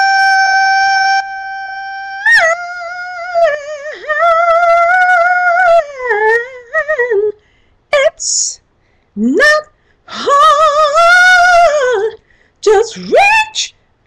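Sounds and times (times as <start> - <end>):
woman singing a high held note: 0.0 - 7.4, 8.0 - 8.6.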